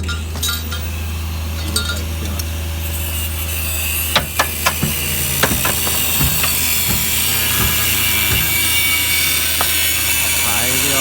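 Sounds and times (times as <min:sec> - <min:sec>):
low hum: 0:00.1 - 0:10.4
metal knocks on sheet metal: 0:04.2 - 0:09.0.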